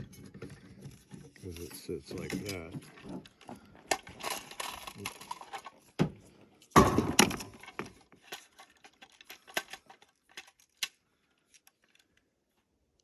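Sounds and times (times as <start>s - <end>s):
plastic rattling scrape: 0.0s - 5.9s, 7.2s - 11.0s
plastic parts clicking and knocking: 0.0s - 12.2s.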